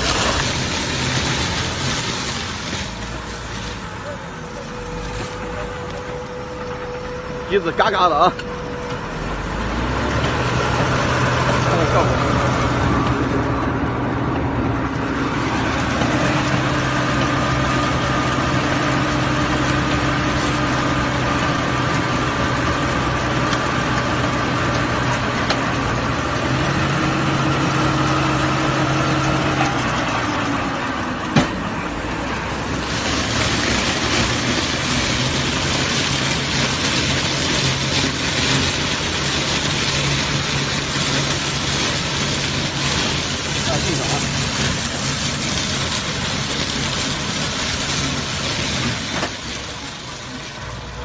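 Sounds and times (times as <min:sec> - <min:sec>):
loud hiss: 0:00.0 - 0:13.4, 0:32.4 - 0:51.0
baling machine humming: 0:00.0 - 0:51.0.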